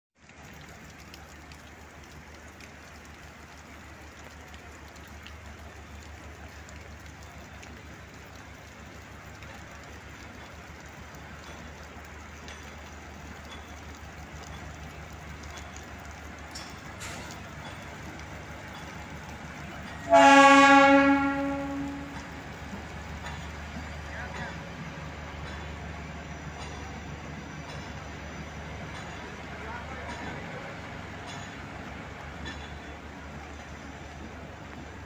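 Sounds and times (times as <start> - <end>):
rain falling: 0.2 - 35.0
train humming: 8.6 - 35.0.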